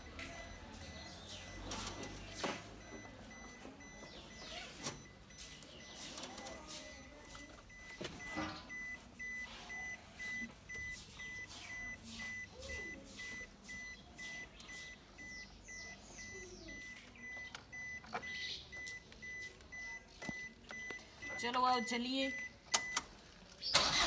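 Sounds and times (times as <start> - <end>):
car warning chime beeping: 0.0 - 23.1.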